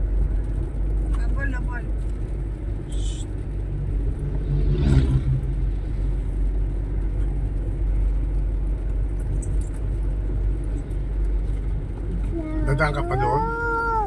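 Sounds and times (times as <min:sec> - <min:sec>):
low rumble of vehicle on road: 0:00.0 - 0:14.0
vehicle engine passing close: 0:02.8 - 0:07.0.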